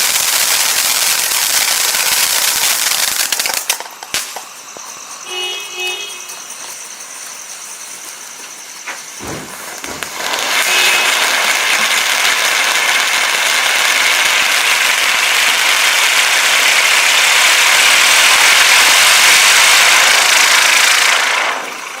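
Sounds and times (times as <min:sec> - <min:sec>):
firework loud steady hiss: 0:00.0 - 0:22.0
firework low thump: 0:08.8 - 0:10.7.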